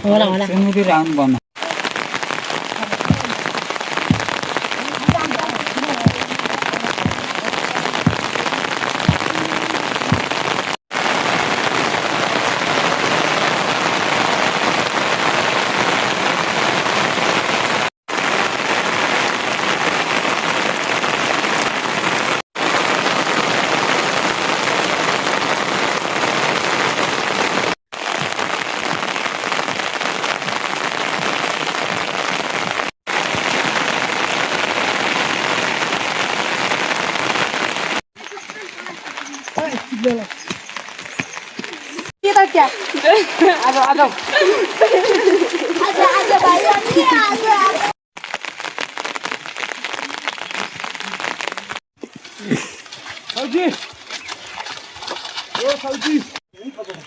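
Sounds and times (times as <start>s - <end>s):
heavy rain: 0.0s - 56.4s
sharp taps: 4.0s - 4.5s, 9.1s - 9.3s.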